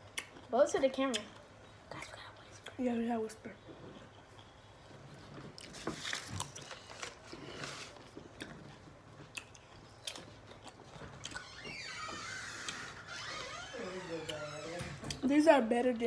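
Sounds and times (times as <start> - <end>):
crunchy chewing of pickles: 3.9 - 11.7.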